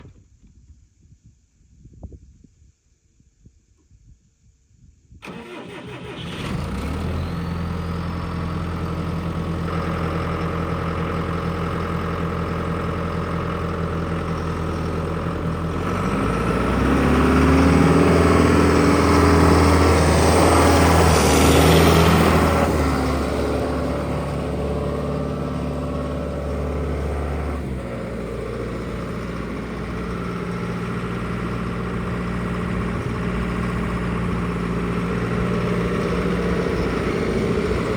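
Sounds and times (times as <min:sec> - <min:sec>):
tractor diesel engine starting and revving: 0:05.2 - 0:37.9.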